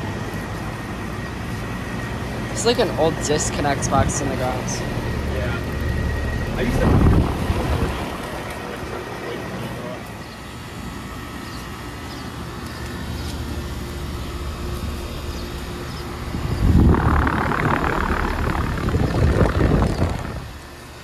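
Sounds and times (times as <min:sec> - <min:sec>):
condenser fan noise: 0:00.0 - 0:21.0
compressor hum: 0:13.5 - 0:21.0
rushing noise: 0:16.3 - 0:20.7.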